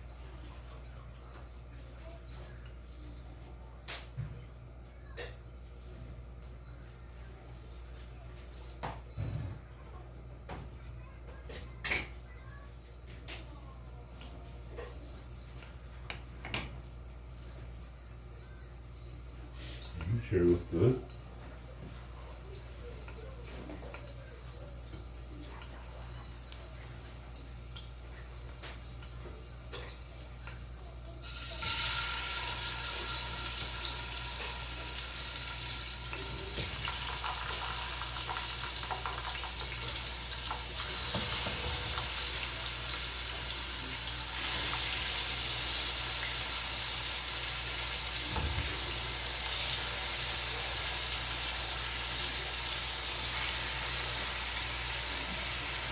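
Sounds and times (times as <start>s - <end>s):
meat sizzling in oil: 26.2s - 55.9s.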